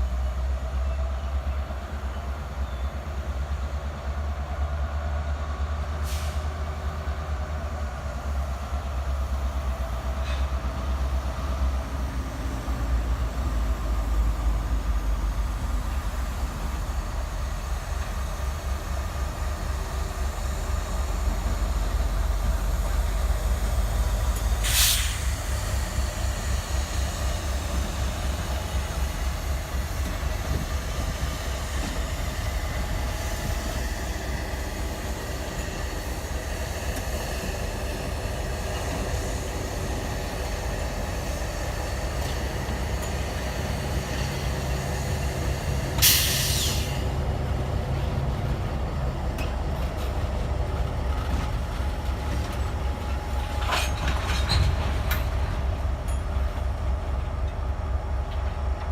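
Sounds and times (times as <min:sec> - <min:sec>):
freight train rumbling by: 0:00.0 - 0:58.9
air brake hiss: 0:06.0 - 0:06.6, 0:24.6 - 0:25.5, 0:46.0 - 0:47.1.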